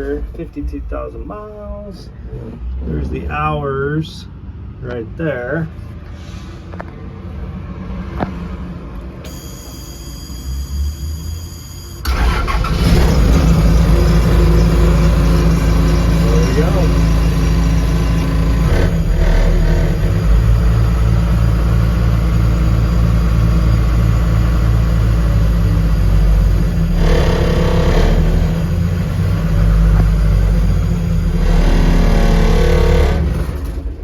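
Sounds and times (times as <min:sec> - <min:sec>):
diesel truck engine running: 0:12.0 - 0:34.0.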